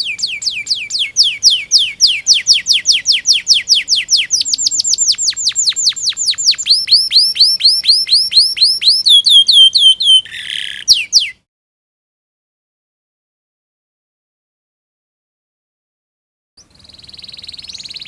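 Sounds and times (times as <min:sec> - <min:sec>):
canary singing: 0:00.0 - 0:11.4, 0:16.6 - 0:18.0.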